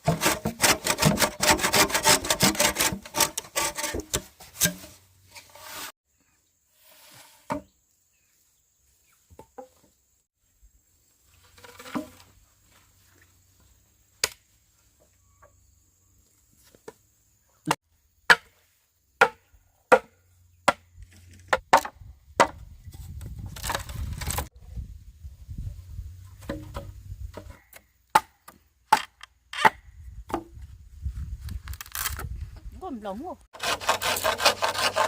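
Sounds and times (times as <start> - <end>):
blade chopping bamboo: 0.0 - 4.9, 33.6 - 35.0.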